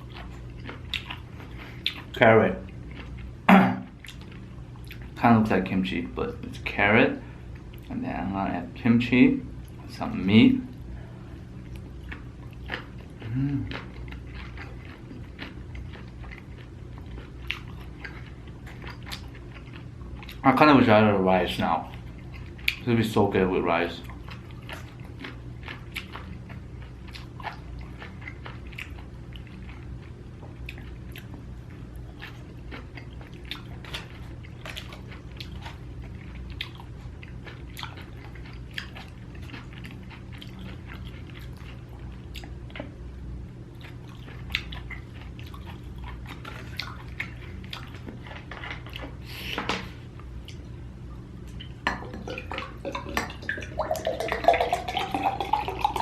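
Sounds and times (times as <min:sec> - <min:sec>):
close chewing with mouth clicks: 0:00.0 - 0:05.2, 0:11.6 - 0:20.4, 0:21.8 - 0:22.9, 0:24.0 - 0:43.0, 0:43.7 - 0:49.6, 0:51.4 - 0:56.0
steady low hum: 0:00.0 - 0:56.0.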